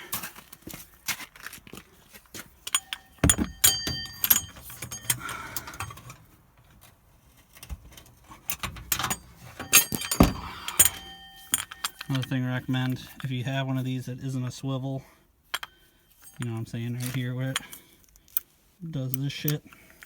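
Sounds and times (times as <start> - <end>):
metal hand tools clinking: 2.6 - 6.3, 7.6 - 13.4, 15.5 - 18.5.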